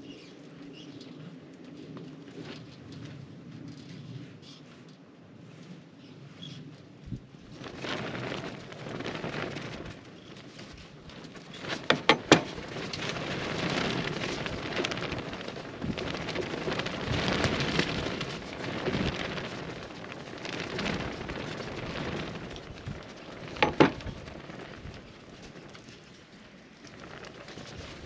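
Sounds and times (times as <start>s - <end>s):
fire pops: 7.0s - 26.2s
campfire crackling: 7.1s - 28.0s.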